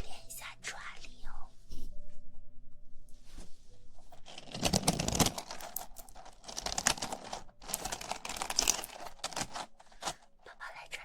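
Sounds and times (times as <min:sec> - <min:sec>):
wooden pieces clacking: 0:04.2 - 0:10.3.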